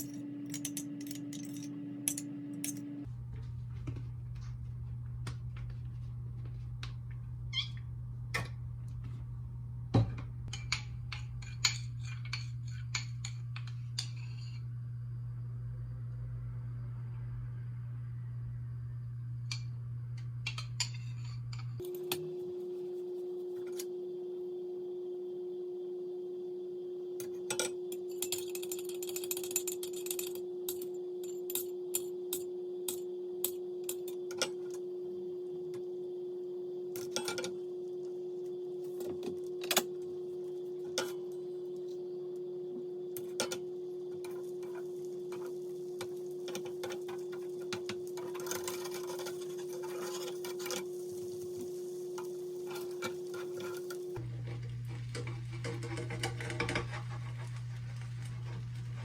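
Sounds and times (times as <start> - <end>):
utensils and dishes clinking: 0.0 - 2.9
steady low hum: 0.0 - 59.0.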